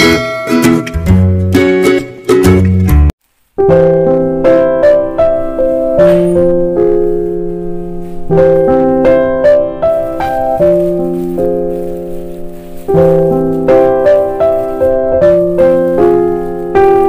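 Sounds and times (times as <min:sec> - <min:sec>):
gentle piano music: 0:03.6 - 0:17.0.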